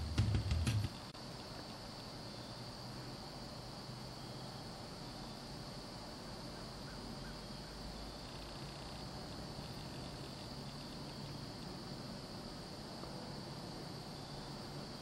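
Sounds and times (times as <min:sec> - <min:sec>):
steady high hiss: 0:00.0 - 0:15.0
faint ticks: 0:00.9 - 0:02.2, 0:08.2 - 0:11.8.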